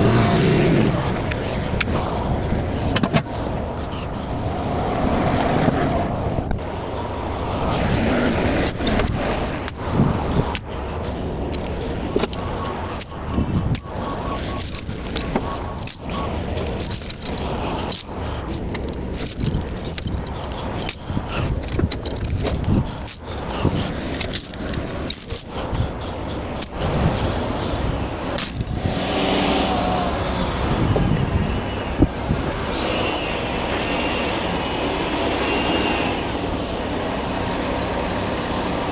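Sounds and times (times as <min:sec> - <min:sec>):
metal chains clanking and rattling: 0:07.6 - 0:25.6, 0:26.5 - 0:27.0, 0:28.4 - 0:29.0.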